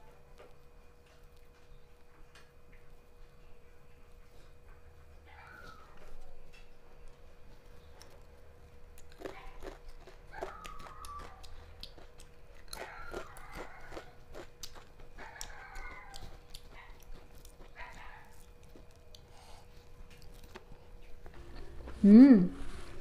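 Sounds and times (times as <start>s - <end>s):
chewing and biting food: 0.0s - 3.0s, 3.7s - 21.4s.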